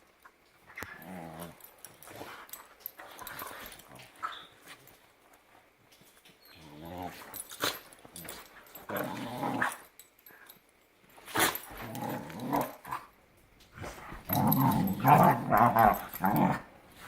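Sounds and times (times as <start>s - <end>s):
dogs growling and snarling: 0.7s - 4.5s, 6.6s - 9.9s, 11.2s - 17.0s.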